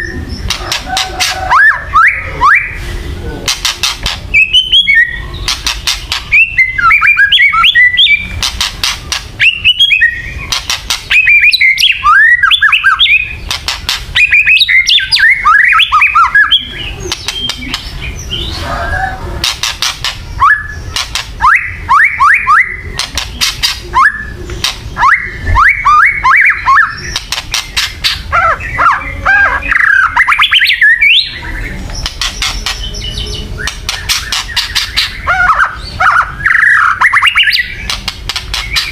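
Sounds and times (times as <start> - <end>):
bird harsh rattling calls: 0.0 - 1.8, 3.5 - 38.9
bird whistled phrases: 0.0 - 2.8, 4.3 - 5.6, 6.3 - 8.3, 9.4 - 13.4, 14.2 - 19.2, 20.3 - 23.0, 23.6 - 24.4, 25.0 - 27.2, 27.8 - 31.7, 32.4 - 37.9.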